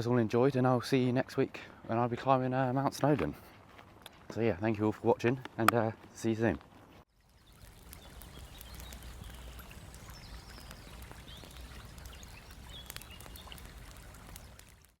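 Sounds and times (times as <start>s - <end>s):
steady woodland hiss: 7.2s - 14.7s.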